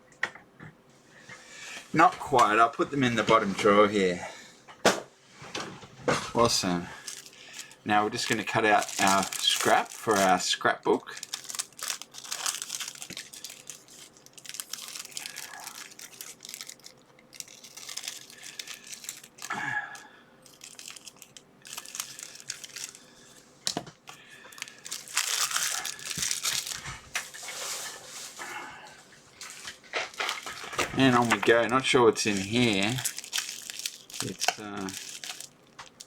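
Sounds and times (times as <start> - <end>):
packaging crinkling and rustling: 6.2 - 28.4, 29.4 - 36.0
scissors cutting package: 7.0 - 10.4, 11.1 - 19.6, 30.1 - 36.0.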